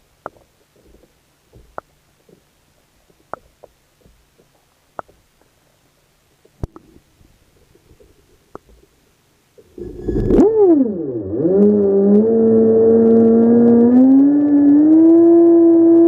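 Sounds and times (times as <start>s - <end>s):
sharp clicks and knocks: 0.0s - 5.5s
faint low rumble: 0.0s - 16.0s.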